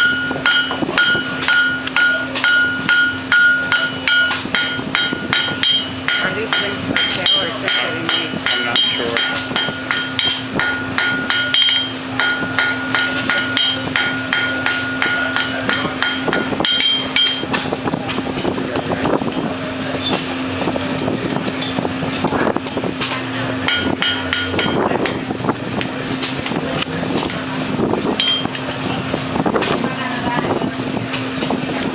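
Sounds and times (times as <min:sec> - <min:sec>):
hammer striking metal on anvil: 0:00.0 - 0:17.7, 0:23.0 - 0:25.2, 0:28.2 - 0:28.6
steady low hum: 0:00.0 - 0:31.9.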